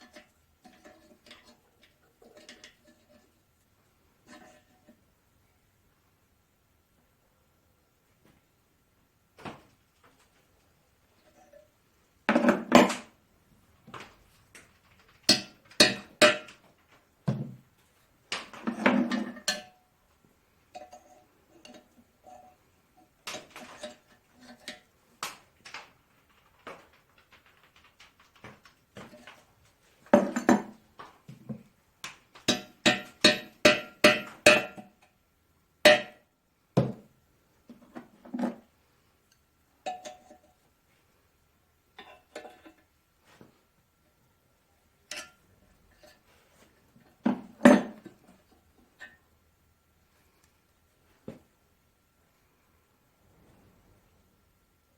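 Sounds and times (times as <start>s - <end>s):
hammer striking metal chisel: 32.5s - 34.9s, 35.9s - 36.2s.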